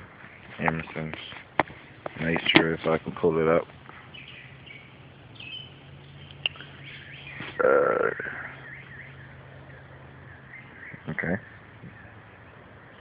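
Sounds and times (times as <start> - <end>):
faint bird chirps: 4.0 - 13.0.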